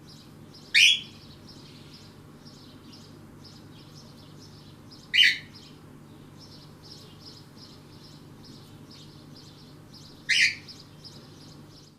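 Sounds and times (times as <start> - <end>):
small birds chirping: 0.0 - 11.9
loud sharp bird call: 5.2 - 5.5, 10.3 - 10.8.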